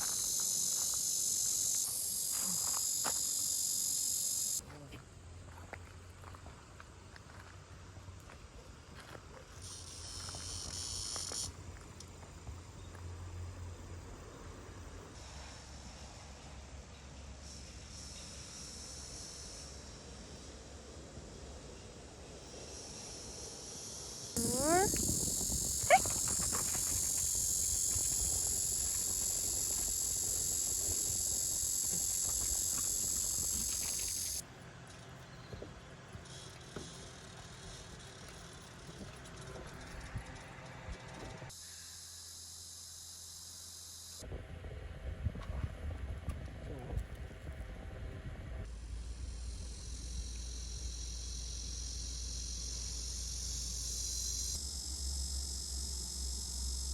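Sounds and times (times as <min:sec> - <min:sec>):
cicada buzzing: 0:00.0 - 0:04.6, 0:09.6 - 0:11.6, 0:23.7 - 0:34.4, 0:49.3 - 0:56.9
cicadas droning: 0:00.0 - 0:44.2, 0:48.6 - 0:56.9.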